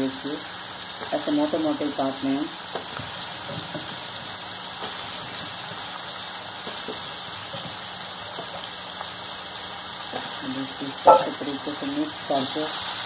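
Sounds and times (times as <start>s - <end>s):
food sizzling in a pot: 0.0s - 13.0s.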